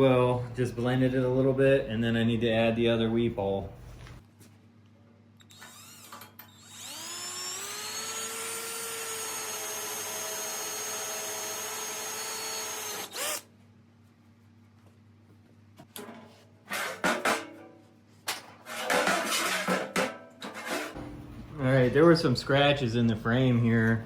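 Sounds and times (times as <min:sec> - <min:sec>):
electric drill whining: 0:05.5 - 0:13.5.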